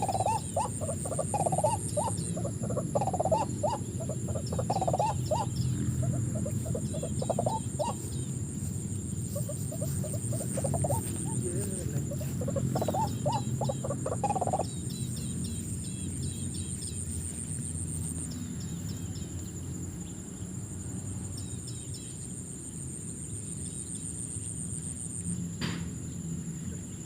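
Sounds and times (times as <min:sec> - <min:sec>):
waterhen calling: 0:00.0 - 0:08.4, 0:09.3 - 0:14.9
small birds chirping: 0:00.0 - 0:20.5
high-pitched insect drone: 0:00.0 - 0:25.5.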